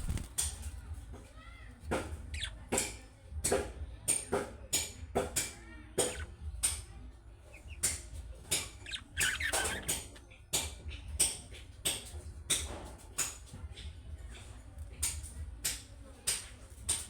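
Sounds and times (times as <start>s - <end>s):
budgerigars chirping and clicking: 0.0s - 0.6s, 1.9s - 3.6s, 6.0s - 12.6s.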